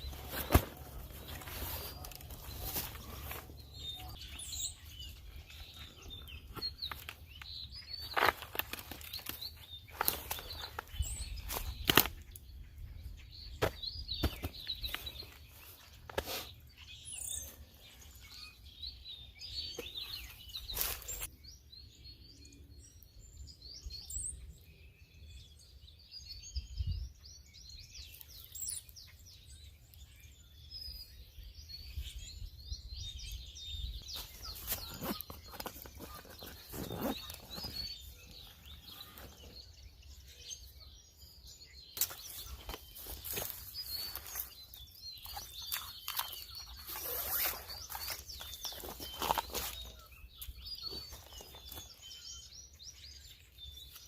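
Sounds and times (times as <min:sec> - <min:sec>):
birds chirping and calling: 0:00.0 - 0:54.0.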